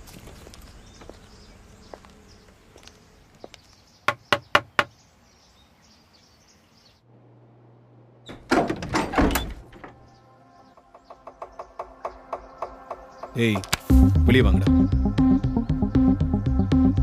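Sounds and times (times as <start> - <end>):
knocks on a door: 4.1 - 4.9
door banging and rattling: 8.3 - 10.2.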